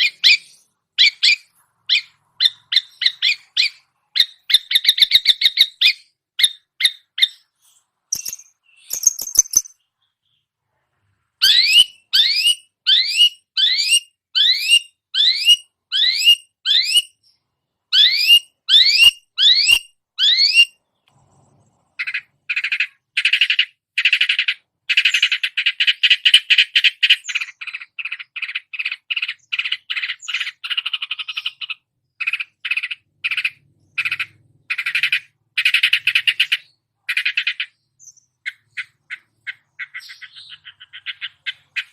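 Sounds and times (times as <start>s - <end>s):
shrike singing: 8.1s - 10.0s.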